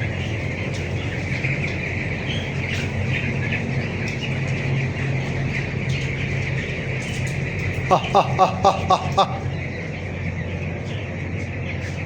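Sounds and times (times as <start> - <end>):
chicks peeping: 0.1 - 11.9.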